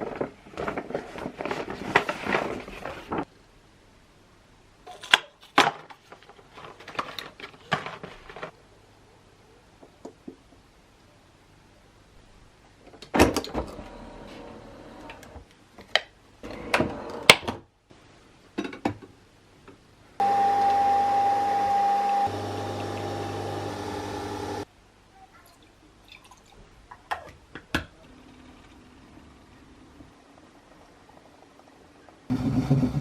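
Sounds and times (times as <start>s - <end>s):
kitchen appliance humming: 13.5s - 15.4s, 20.2s - 24.6s.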